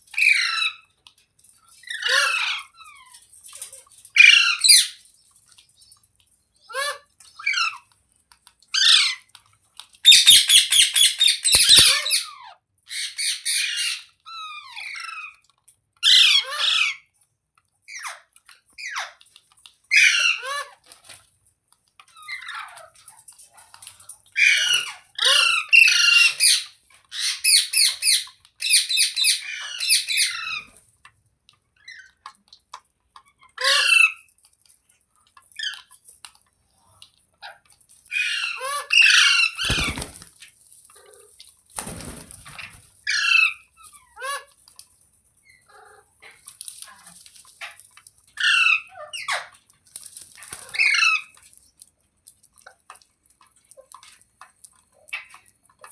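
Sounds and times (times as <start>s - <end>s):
parrot screeching: 1.8s - 2.9s, 4.2s - 5.0s, 10.1s - 15.4s, 16.0s - 17.0s, 19.9s - 20.7s, 38.1s - 40.2s, 43.1s - 43.6s.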